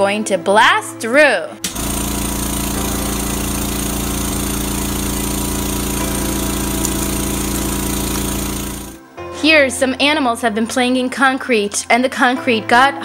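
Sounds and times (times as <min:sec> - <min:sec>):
jackhammer rattling: 0:01.7 - 0:09.0.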